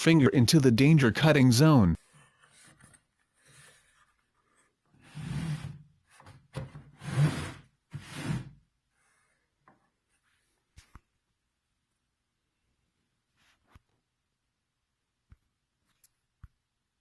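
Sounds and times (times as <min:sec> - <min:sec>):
wood rubbing and scraping: 0:07.0 - 0:08.5.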